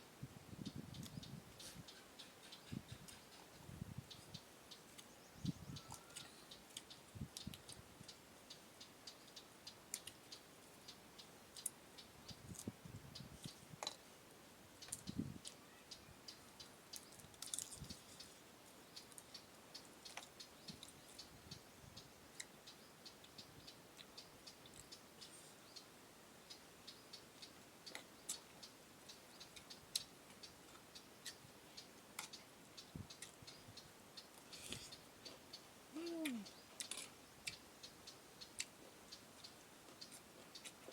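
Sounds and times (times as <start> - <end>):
crunchy chewing clicks: 5.9 - 8.2, 9.1 - 12.8, 14.8 - 15.6, 16.4 - 21.6, 22.3 - 23.2, 27.4 - 33.6, 36.2 - 40.9.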